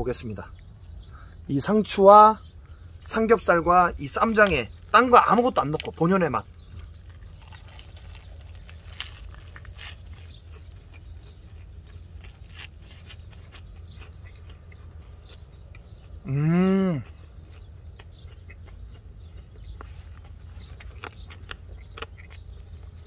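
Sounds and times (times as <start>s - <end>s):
man chewing lettuce: 4.2s - 23.0s
man humming mmm: 16.2s - 17.0s.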